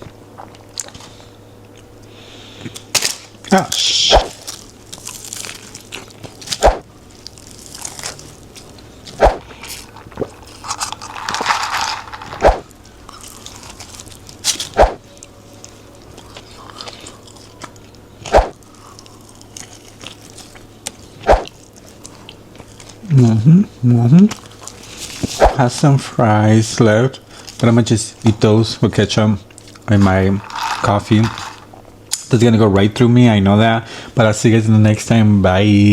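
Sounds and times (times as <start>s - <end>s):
crunching bites: 2.7s - 15.3s, 16.2s - 23.0s
wet chewing: 12.4s - 23.0s.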